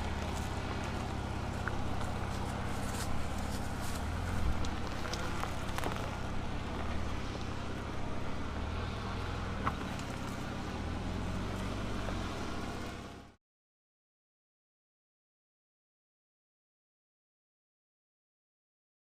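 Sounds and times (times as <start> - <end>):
pickup engine running: 0.0 - 13.4.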